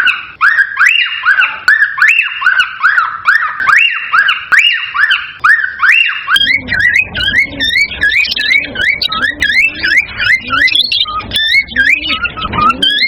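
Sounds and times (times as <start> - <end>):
cockatiel whistling: 0.0 - 13.0
low background rumble: 6.4 - 13.0.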